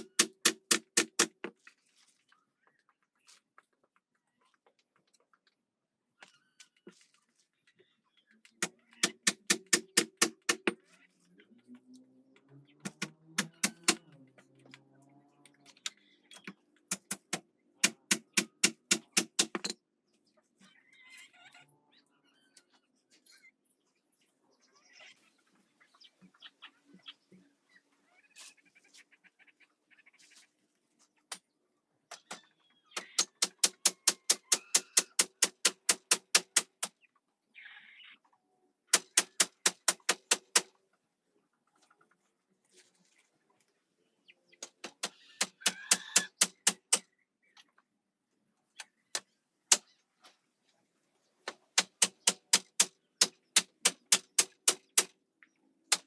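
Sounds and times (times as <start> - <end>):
hammer strikes: 0.0 - 1.5, 9.0 - 10.8, 12.8 - 14.0, 16.9 - 19.8, 33.0 - 36.9, 39.0 - 40.7, 44.8 - 47.0, 51.8 - 55.1
rapid knocks: 12.9 - 14.0, 16.9 - 19.8.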